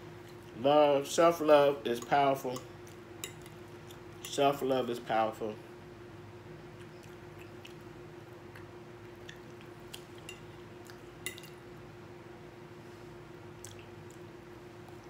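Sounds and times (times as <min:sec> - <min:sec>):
person chewing food: 0:02.8 - 0:04.2, 0:06.6 - 0:11.6, 0:13.6 - 0:15.0.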